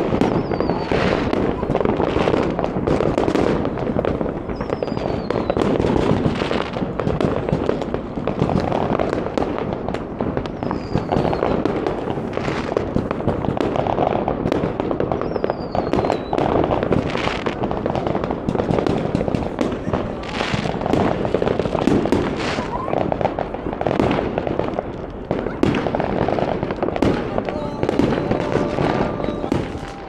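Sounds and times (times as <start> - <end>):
fireworks crackling and banging: 0.0 - 30.0
falling whistle: 10.7 - 11.6.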